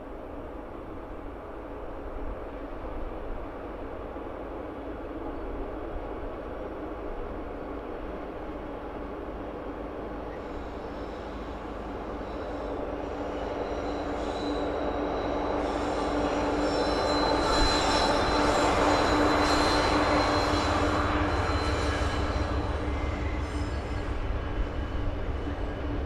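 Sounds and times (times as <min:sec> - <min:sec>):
train approaching on track: 0:00.0 - 0:26.0
high squeal of wheels on rails: 0:03.6 - 0:26.0.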